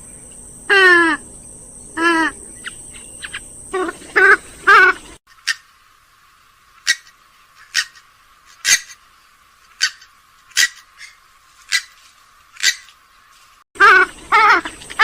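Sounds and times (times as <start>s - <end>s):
bird giving sharp calls: 2.0s - 5.8s, 6.8s - 9.0s, 9.7s - 13.0s, 13.8s - 15.0s.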